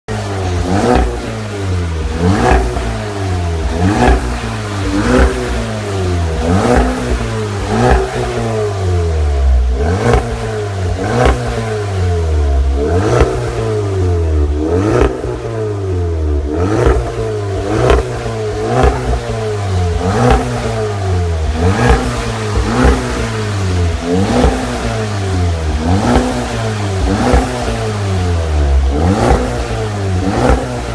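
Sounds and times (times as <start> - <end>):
car engine throttle blips: 0.1 - 30.9.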